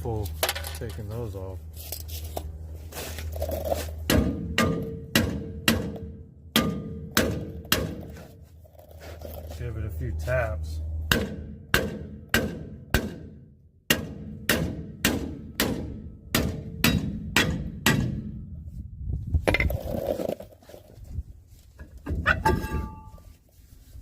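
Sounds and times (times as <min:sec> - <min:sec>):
hammer striking metal brake drum: 0:04.1 - 0:08.1.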